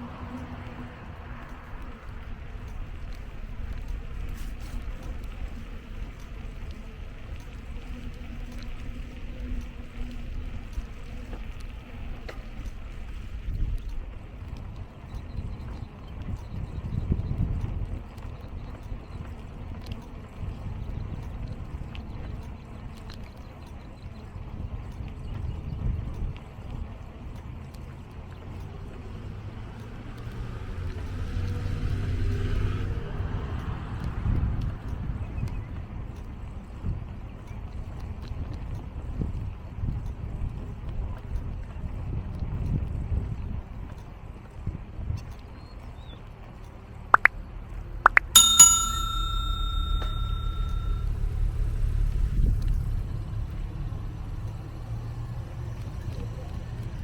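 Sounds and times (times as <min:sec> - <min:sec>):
traffic rumble: 0:00.0 - 0:14.5
wind: 0:00.0 - 0:57.0
bicycle bell ringing: 0:48.3 - 0:51.1.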